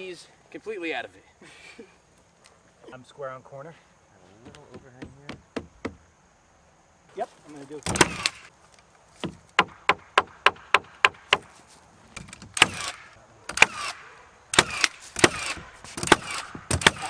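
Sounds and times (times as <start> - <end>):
hammering nails into wood: 4.5 - 6.0, 7.8 - 8.5, 9.2 - 11.5, 12.2 - 17.0.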